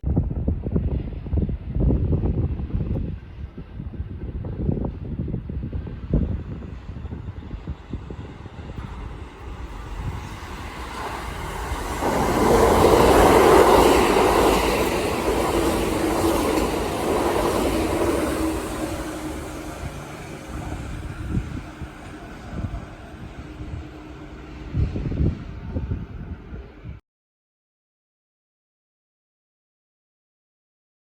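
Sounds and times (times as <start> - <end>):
electric train passing: 0.4 - 27.0
steady hum: 8.7 - 16.9.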